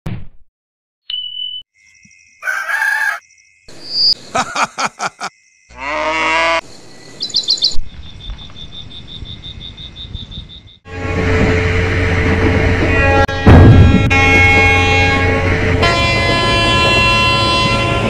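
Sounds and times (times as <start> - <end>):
bird chirps: 1.1 - 5.1, 6.8 - 10.8
hens clucking: 2.4 - 3.2
rooster crowing: 2.4 - 3.3
cow mooing: 5.7 - 6.6.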